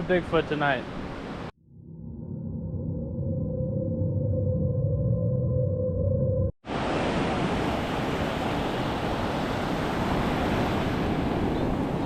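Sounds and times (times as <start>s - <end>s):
ocean surf washing on beach: 6.7s - 12.0s.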